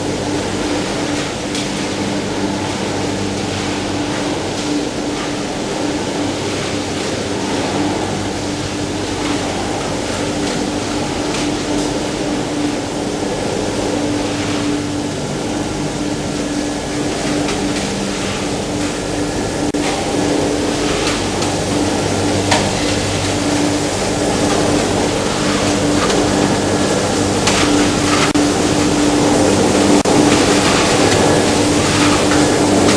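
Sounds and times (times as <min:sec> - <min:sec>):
machine hum with steady tone: 0:00.0 - 0:32.9
water washing: 0:00.0 - 0:32.9.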